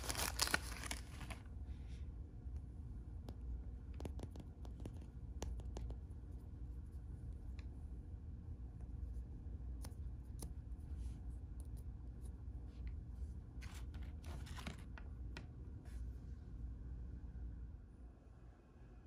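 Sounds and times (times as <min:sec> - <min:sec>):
packaging crinkling: 0:00.0 - 0:01.5, 0:13.6 - 0:15.0
low room hum: 0:00.0 - 0:19.0.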